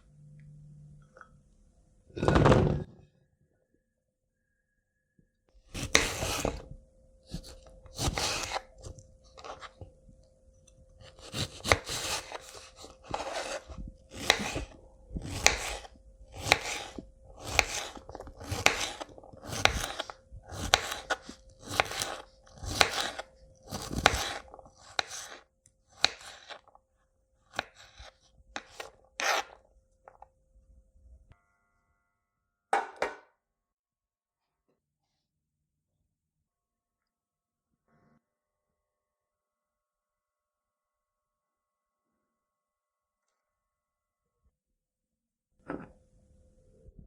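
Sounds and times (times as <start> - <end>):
knife slicing on cutting board: 5.8 - 6.7, 7.3 - 9.8, 11.0 - 26.7, 27.5 - 29.6.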